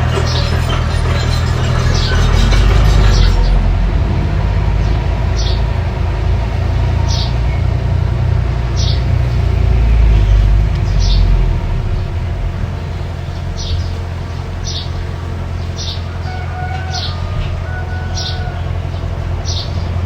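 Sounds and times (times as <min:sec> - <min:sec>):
bulldozer engine rumble: 0:00.0 - 0:20.0
bird chirping: 0:08.7 - 0:20.0.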